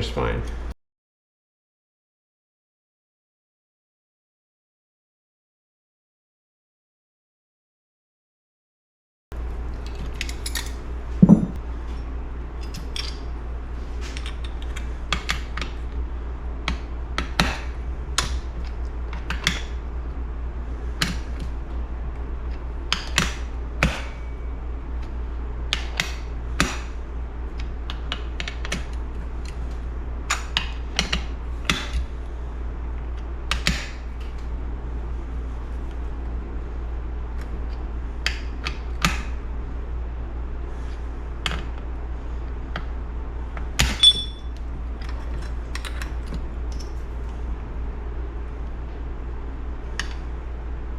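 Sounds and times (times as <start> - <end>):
steady low hum: 9.4 - 28.1
metal parts clicking and clinking: 10.2 - 11.6, 44.0 - 44.4
loud knock: 11.2 - 11.6.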